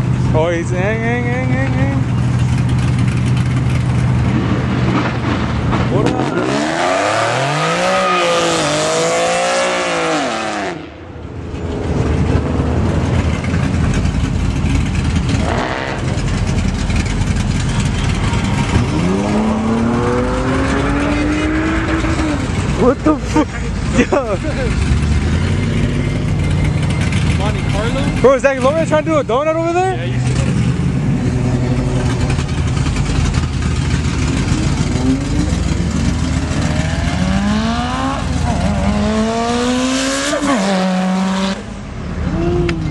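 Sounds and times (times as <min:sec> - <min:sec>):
car engine revving: 0:00.0 - 0:42.9
steady rushing noise: 0:10.8 - 0:37.2.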